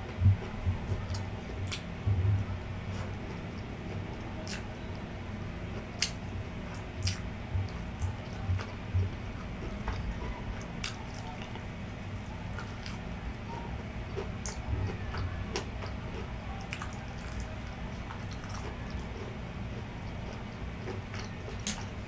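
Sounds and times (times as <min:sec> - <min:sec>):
wet chewing and lip smacks: 0:00.4 - 0:01.9, 0:03.0 - 0:04.8, 0:06.0 - 0:10.0, 0:10.6 - 0:11.7, 0:12.5 - 0:13.0, 0:15.5 - 0:17.5, 0:18.1 - 0:21.9.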